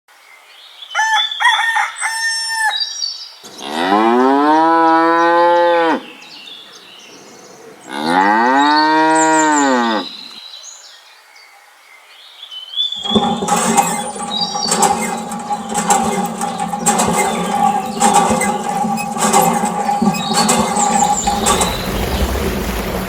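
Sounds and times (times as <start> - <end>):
cow mooing: 3.5 - 6.1, 7.9 - 10.2.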